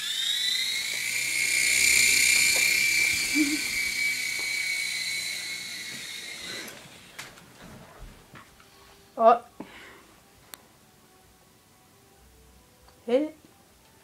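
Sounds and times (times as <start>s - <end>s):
model helicopter rotor whining: 0.0s - 7.5s.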